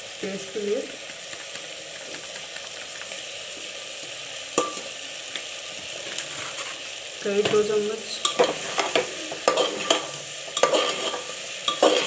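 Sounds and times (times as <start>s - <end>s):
vegetables sizzling in oil: 0.0s - 12.0s
metal spoon clinking on pot: 8.2s - 12.0s.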